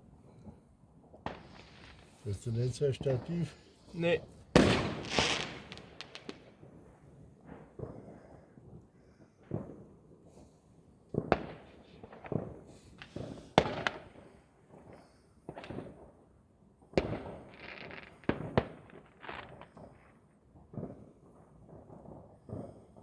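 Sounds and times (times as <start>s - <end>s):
fireworks banging: 0.4s - 8.8s, 9.4s - 16.2s, 16.8s - 23.0s
firecrackers crackling: 1.1s - 23.0s.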